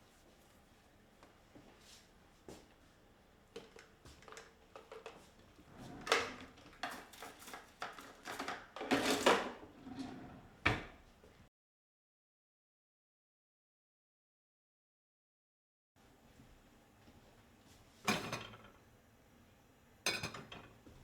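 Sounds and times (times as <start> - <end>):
objects being moved about: 3.6 - 10.8.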